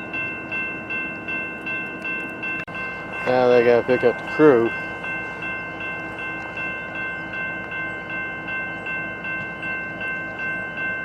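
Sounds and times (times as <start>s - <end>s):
crossing warning bell ringing: 0.0s - 11.0s
idling diesel locomotives rumble: 0.0s - 11.0s.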